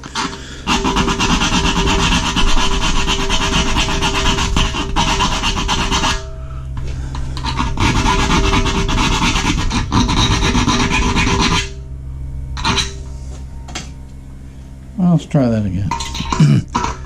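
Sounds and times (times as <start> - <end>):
metal being filed: 0.0 - 11.8, 12.6 - 13.0, 15.9 - 17.0.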